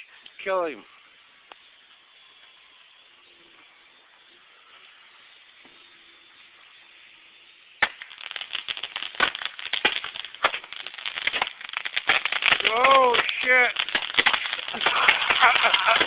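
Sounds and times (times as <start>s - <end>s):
firework crack: 0.0s - 16.0s
crackling pops: 7.8s - 16.0s.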